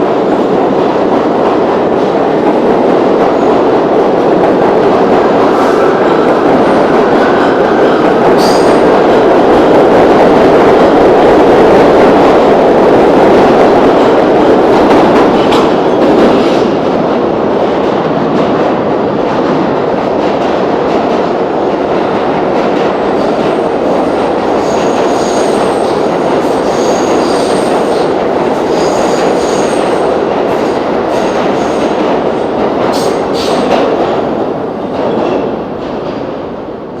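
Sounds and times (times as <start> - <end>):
train wheels rumbling on rails: 0.0 - 37.0
rail-joint clicks: 14.1 - 16.7.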